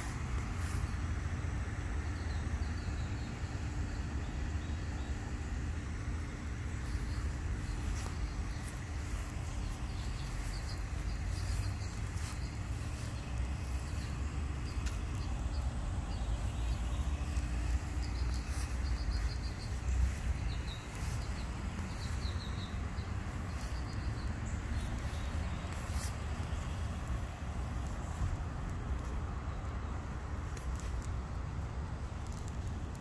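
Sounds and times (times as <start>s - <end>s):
steady low rumble: 0.0s - 33.0s
small bird chirping: 6.7s - 27.2s.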